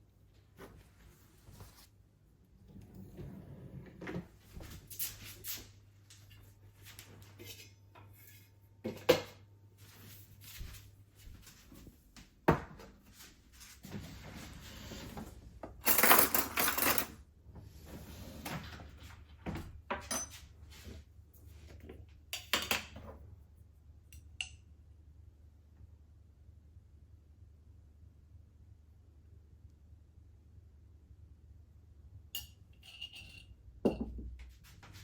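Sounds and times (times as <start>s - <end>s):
rustling or scraping: 0.5s - 2.0s, 13.2s - 15.4s
dishes and cutlery clinking: 20.0s - 20.5s, 32.4s - 34.2s.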